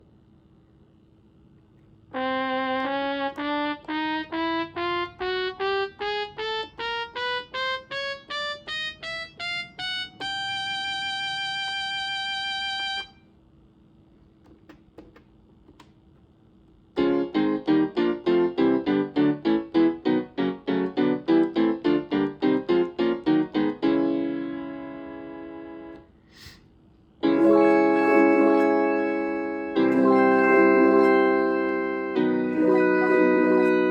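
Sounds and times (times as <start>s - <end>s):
electronic instrument notes and chords: 3.3s - 13.2s, 17.0s - 26.0s, 27.2s - 33.9s.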